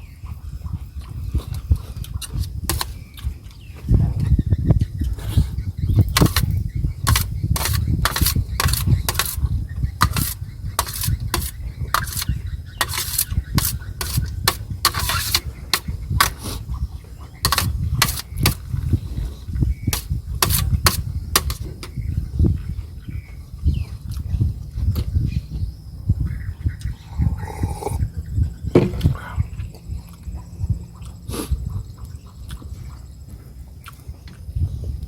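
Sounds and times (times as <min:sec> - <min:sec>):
chewing and wet mouth sounds: 0:29.4 - 0:34.6.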